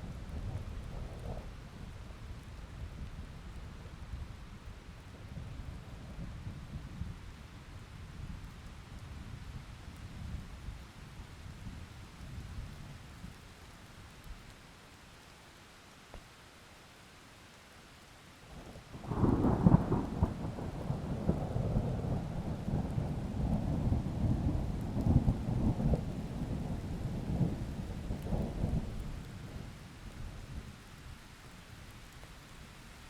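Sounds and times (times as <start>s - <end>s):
steady rain: 0.0s - 33.0s
thunder rumbling: 19.0s - 29.0s.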